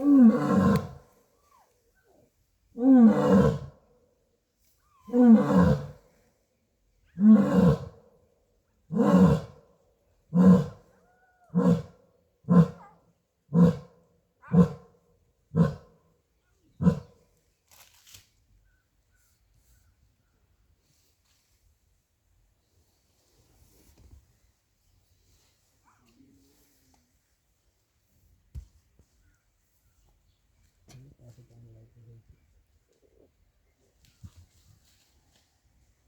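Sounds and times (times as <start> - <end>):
lion roaring: 0.0 - 1.0, 2.8 - 3.7.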